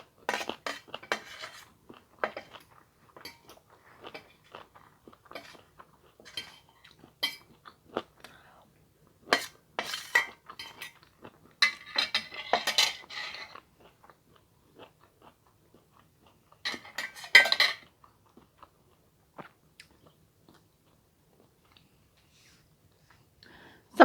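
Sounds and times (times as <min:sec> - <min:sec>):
cutlery scraping a plate: 0:00.3 - 0:04.7, 0:05.3 - 0:07.5, 0:09.3 - 0:13.6, 0:16.7 - 0:17.9.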